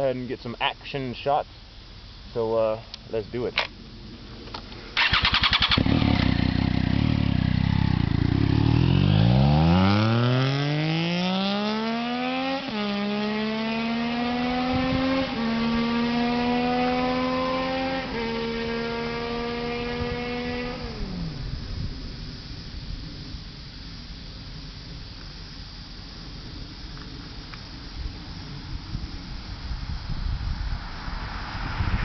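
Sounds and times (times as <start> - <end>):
motorcycle engine revving: 5.0 - 21.6.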